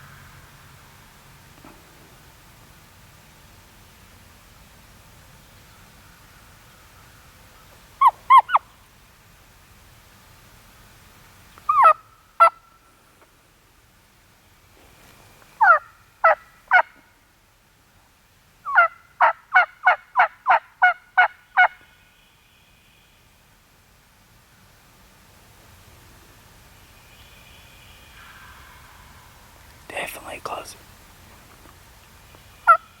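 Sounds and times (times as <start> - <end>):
turkey yelps: 8.0 - 8.7, 11.7 - 12.6, 15.6 - 16.9, 18.7 - 21.8, 32.6 - 32.9.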